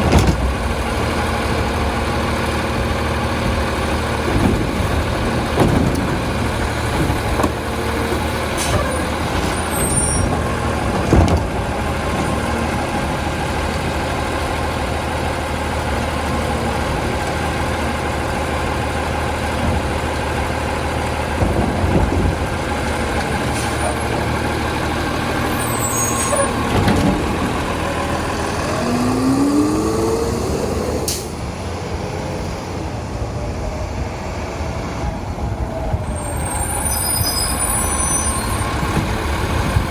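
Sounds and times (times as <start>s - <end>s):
diesel truck engine running: 0.0s - 39.9s
rising whine: 28.4s - 31.5s.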